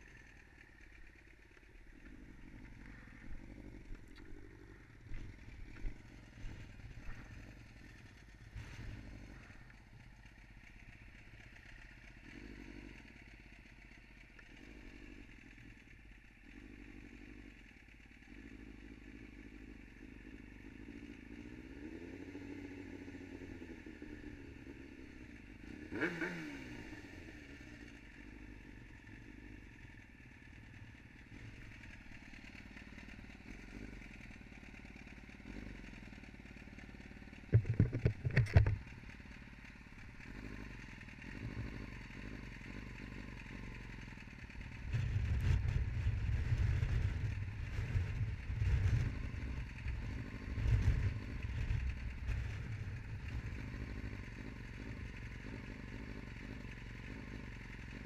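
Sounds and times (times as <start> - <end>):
motorcycle engine at low revs: 0.0 - 58.0
knocks: 37.5 - 38.8.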